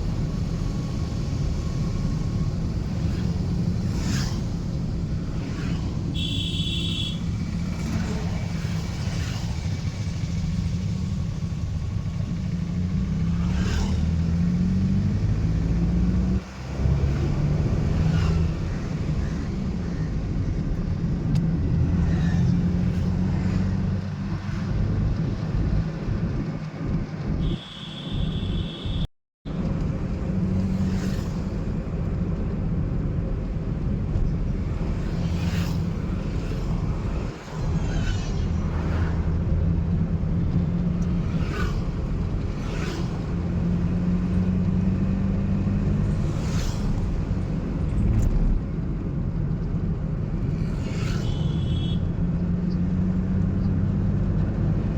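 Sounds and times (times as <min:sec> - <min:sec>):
car engine and road rumble: 0:00.0 - 0:54.9
vehicle horn beeps: 0:06.2 - 0:07.2, 0:27.4 - 0:29.1, 0:51.2 - 0:52.1.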